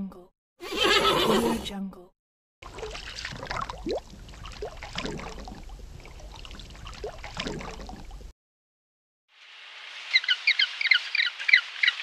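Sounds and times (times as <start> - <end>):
gurgling bubble blips: 2.6 - 8.3.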